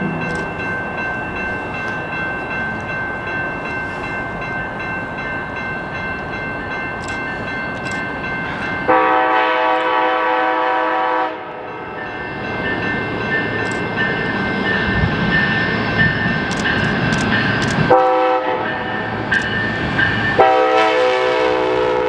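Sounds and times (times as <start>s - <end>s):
passenger train rumbling past: 0.0s - 22.0s
train horn blast: 8.9s - 11.8s, 17.9s - 18.7s, 20.4s - 22.0s.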